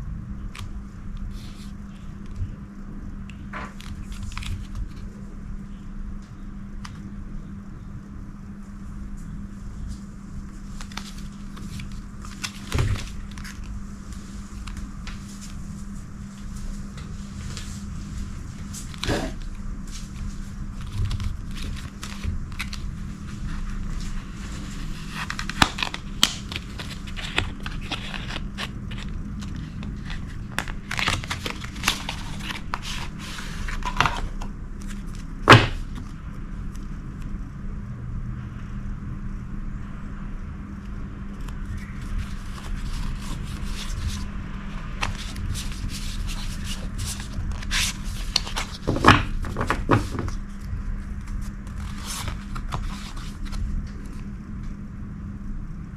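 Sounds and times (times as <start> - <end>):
steady low hum: 0.0 - 55.9
packaging crackling and scraping: 20.1 - 36.0.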